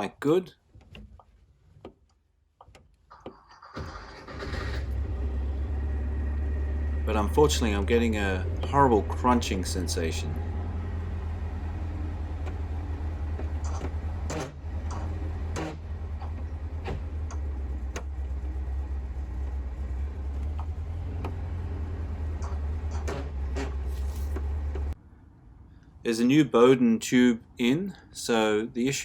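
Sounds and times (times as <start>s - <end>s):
sharp clicks and knocks: 0.7s - 3.9s, 13.3s - 18.4s, 20.3s - 21.5s
air-cooled car engine running: 3.7s - 25.0s.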